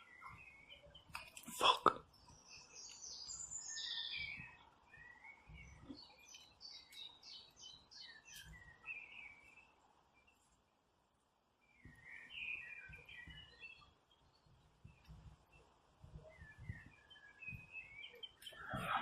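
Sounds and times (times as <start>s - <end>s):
songbird chirping and warbling: 0.0s - 19.0s.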